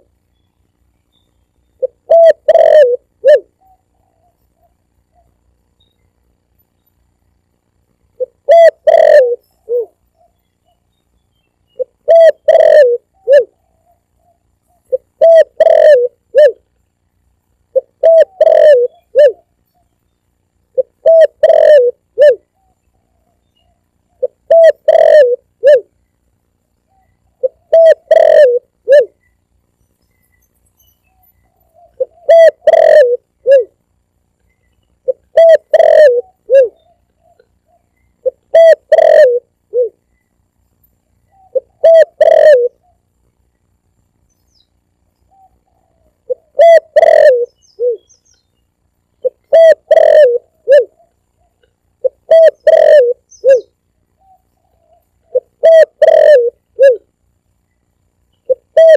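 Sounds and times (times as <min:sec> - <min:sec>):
dove cooing: 0:01.8 - 0:05.5, 0:08.2 - 0:10.8, 0:11.7 - 0:16.6, 0:17.7 - 0:19.9, 0:20.7 - 0:26.0, 0:26.9 - 0:29.2, 0:31.1 - 0:33.8, 0:35.0 - 0:40.0, 0:41.2 - 0:43.0, 0:45.3 - 0:48.2, 0:49.2 - 0:57.2, 0:58.5 - 0:58.9.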